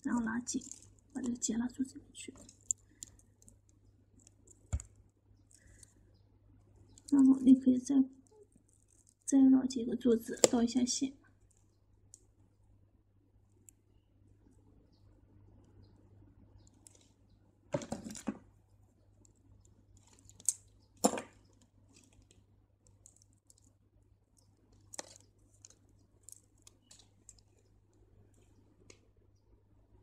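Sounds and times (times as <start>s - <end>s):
crystal beads clicking: 2.3s - 4.7s.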